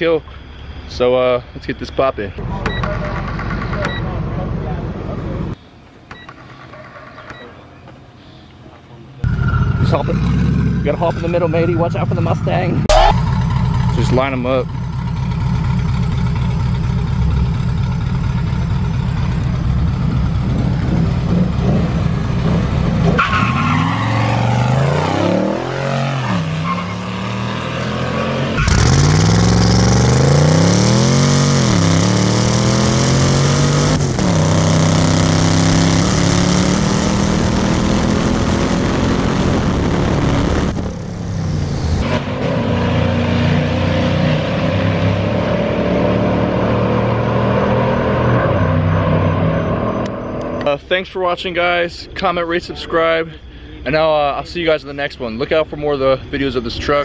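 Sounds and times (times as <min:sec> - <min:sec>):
engines accelerating hard: 0:09.2 - 0:50.8.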